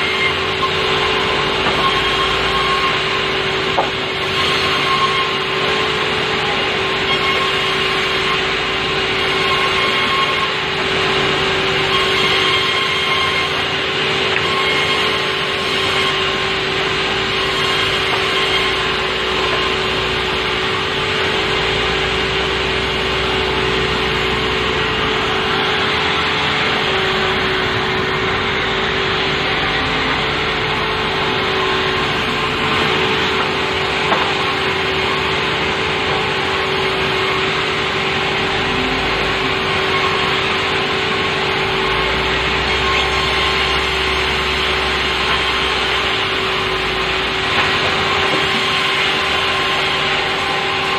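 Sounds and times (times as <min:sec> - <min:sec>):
constant hum: 0:00.0 - 0:50.9
sawmill sawing wood: 0:00.0 - 0:50.9.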